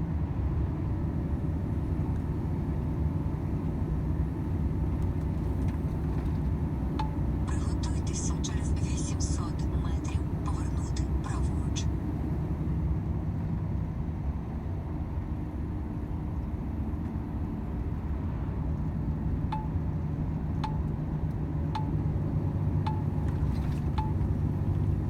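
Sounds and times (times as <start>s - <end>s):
truck engine and road drone: 0.0s - 25.0s
turn signal ticking: 5.0s - 11.9s, 19.5s - 19.8s, 20.6s - 25.0s.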